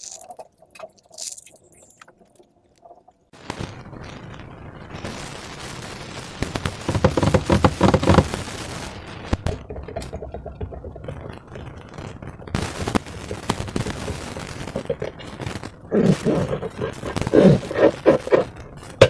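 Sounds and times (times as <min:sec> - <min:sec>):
slime squishing and crackling: 0:00.0 - 0:02.8, 0:09.4 - 0:19.0.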